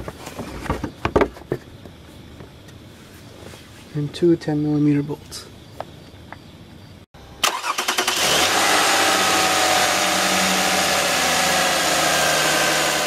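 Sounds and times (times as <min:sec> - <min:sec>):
car engine cranking and idling: 0:07.4 - 0:13.0.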